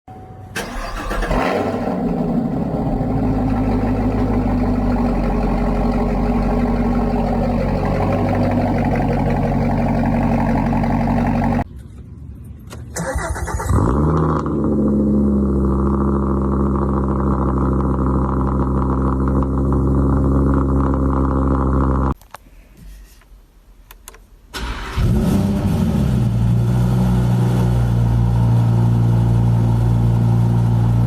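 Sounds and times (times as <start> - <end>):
car engine starting and idling: 0.5 - 11.7, 12.7 - 22.2, 24.5 - 27.1
engine revving: 0.6 - 11.6.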